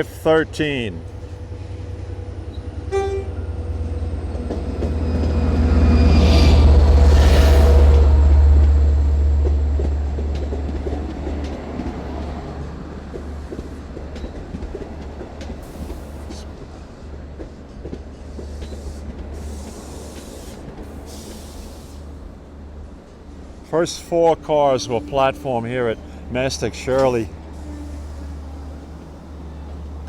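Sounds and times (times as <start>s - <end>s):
locomotive rumble: 0.0s - 30.0s
train wheels clicking over rail joints: 9.4s - 22.2s.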